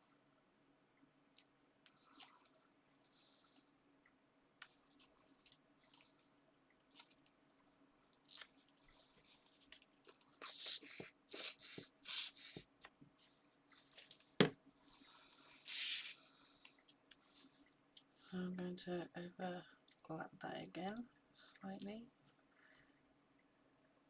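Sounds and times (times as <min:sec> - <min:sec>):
paper and card rustling: 0:09.2 - 0:12.7.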